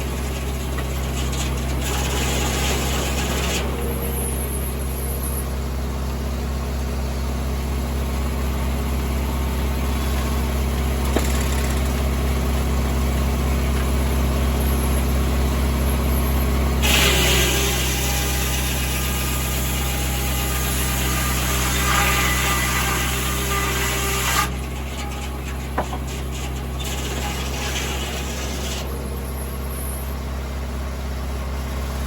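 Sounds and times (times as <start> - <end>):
tractor engine running: 0.0 - 16.8, 24.5 - 32.0.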